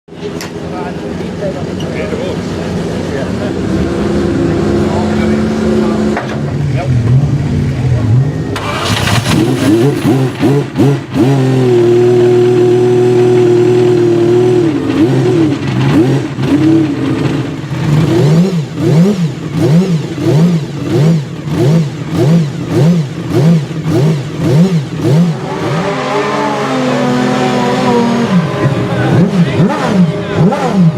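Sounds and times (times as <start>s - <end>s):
racing engine revving: 0.9s - 30.9s.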